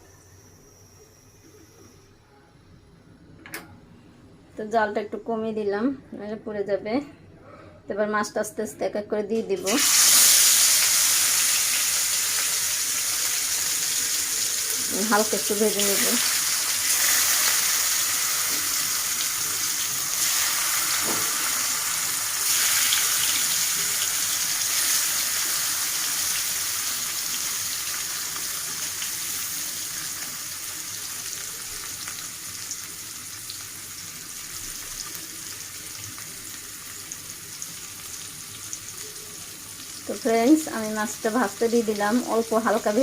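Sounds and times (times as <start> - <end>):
fish sizzling in hot oil: 9.6 - 43.0.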